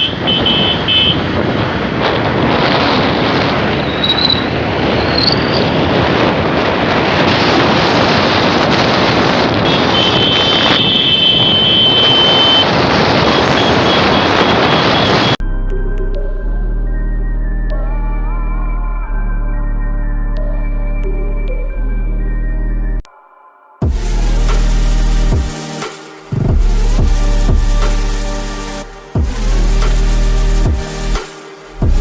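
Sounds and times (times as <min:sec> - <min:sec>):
motorcycle road noise: 0:00.0 - 0:15.4
wind rushing over microphone: 0:00.0 - 0:15.4.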